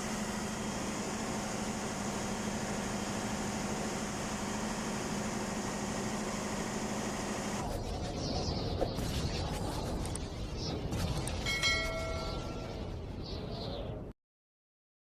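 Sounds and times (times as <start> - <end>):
engine-room machinery droning: 0.0 - 8.8.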